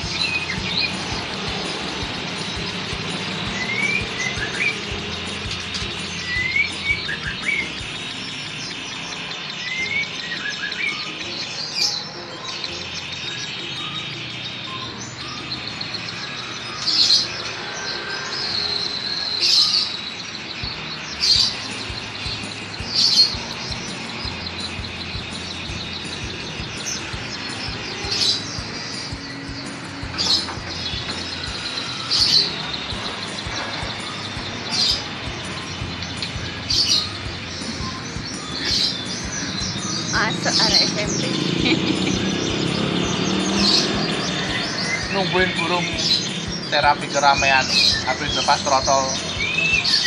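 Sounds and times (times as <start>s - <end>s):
bird singing whistled notes: 0.0s - 50.0s.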